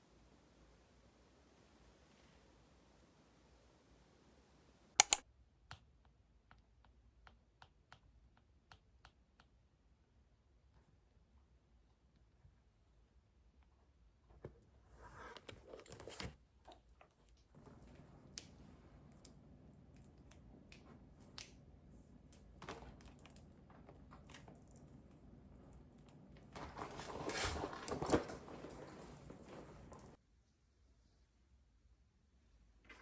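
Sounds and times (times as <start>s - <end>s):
small objects clicking and tapping: 5.0s - 5.2s
rustling and handling: 14.4s - 30.2s.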